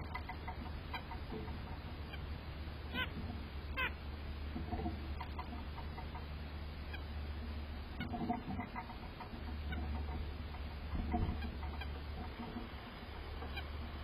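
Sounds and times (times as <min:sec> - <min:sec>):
nuthatch nasal calls: 0:00.0 - 0:04.0, 0:05.1 - 0:07.2.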